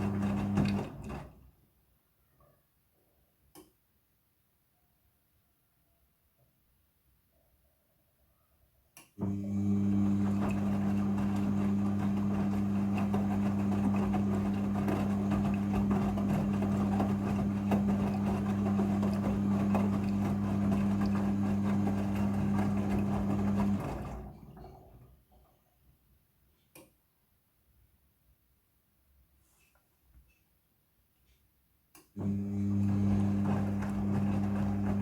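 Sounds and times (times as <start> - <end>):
washing machine hum: 0.0 - 1.6, 9.2 - 25.6, 32.2 - 35.0.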